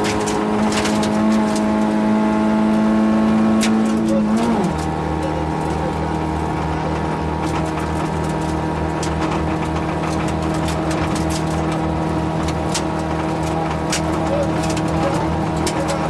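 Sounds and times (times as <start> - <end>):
car engine at steady revs: 0.0 - 16.0
sharp clicks and knocks: 3.6 - 16.0.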